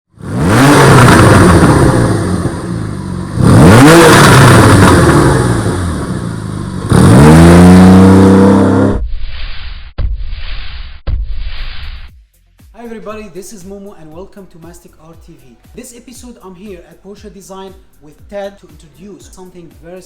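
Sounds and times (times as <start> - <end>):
car engine revving: 0.1 - 9.0.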